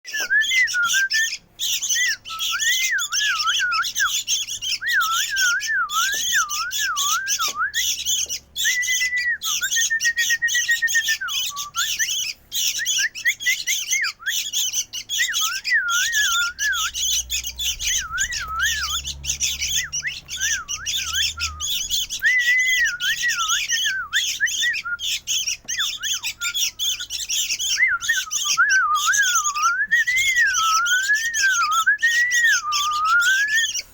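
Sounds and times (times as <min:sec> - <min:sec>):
bird chick squawking: 0:11.1 - 0:33.9
warbling whistle: 0:15.5 - 0:25.0.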